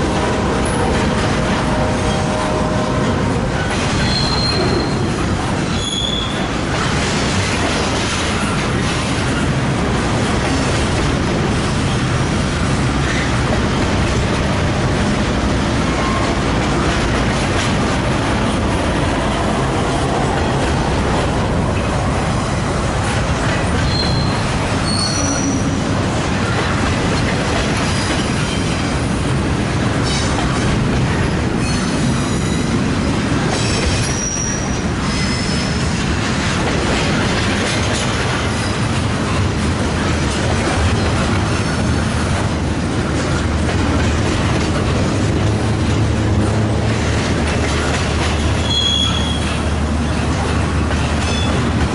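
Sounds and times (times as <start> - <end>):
train wheels on rail: 0.0 - 51.9
high-pitched wheel squeals: 4.0 - 5.1, 5.7 - 6.4, 23.8 - 25.8, 48.6 - 49.6.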